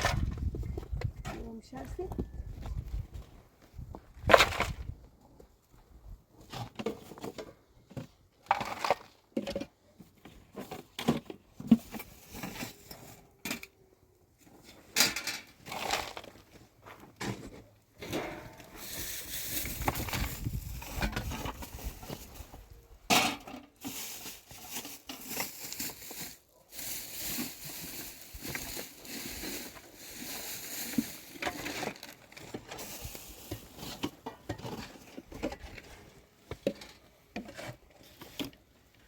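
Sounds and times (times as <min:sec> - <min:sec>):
knocks and clatters of handling: 0:06.4 - 0:39.0
scraping or rustling: 0:14.7 - 0:38.6.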